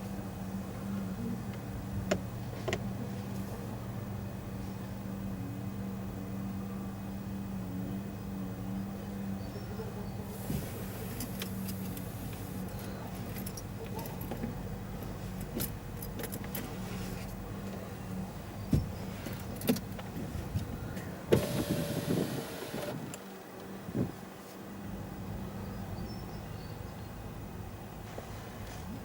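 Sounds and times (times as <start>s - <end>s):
car engine idling: 0.0s - 23.2s
rattling whir: 19.2s - 23.2s.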